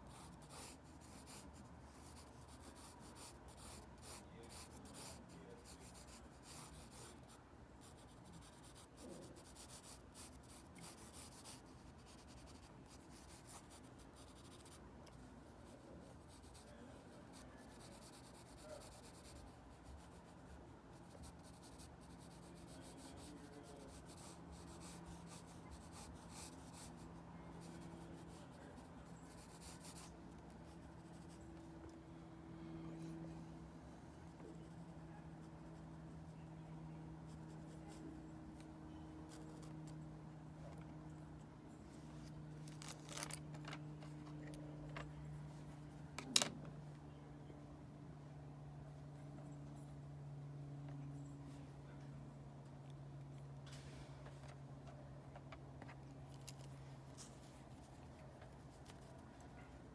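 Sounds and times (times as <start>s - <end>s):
pencil scratching on paper: 0.0s - 14.8s, 15.6s - 31.4s
faint low hum: 0.0s - 59.9s.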